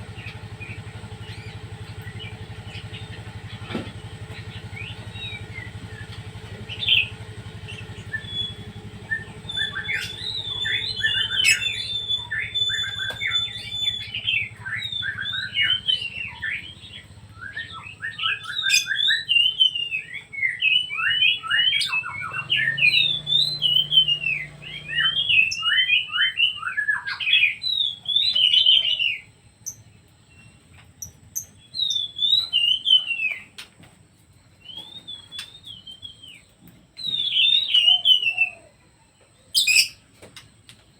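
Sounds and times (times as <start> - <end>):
low steady hum: 0.0 - 37.1
songbird singing: 0.0 - 40.9.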